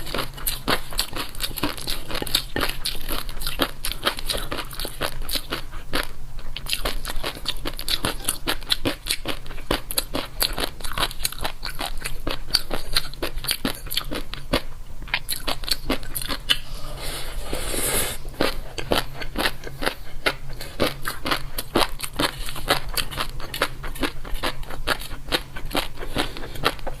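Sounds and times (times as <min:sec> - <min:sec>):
chewing crunchy food: 0:00.0 - 0:17.4, 0:18.2 - 0:27.0
short breathy hiss: 0:16.6 - 0:18.2.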